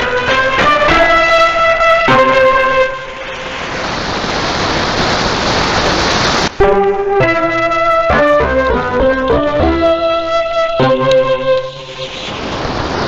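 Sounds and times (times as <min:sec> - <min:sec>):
instrumental music on radio: 0:00.0 - 0:03.4, 0:06.6 - 0:12.4
radio static hiss: 0:03.1 - 0:06.6, 0:11.6 - 0:13.0.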